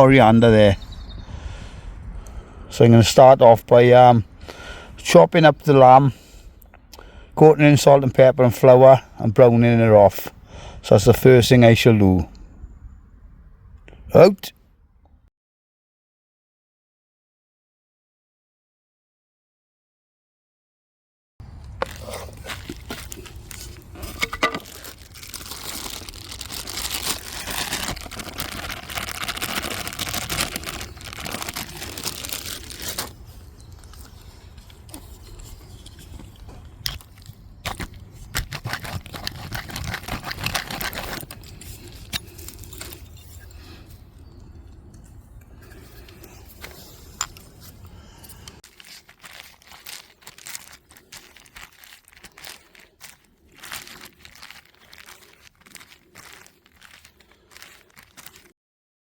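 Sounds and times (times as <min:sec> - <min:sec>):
packaging rustling: 0:21.5 - 0:43.7, 0:48.6 - 0:58.5.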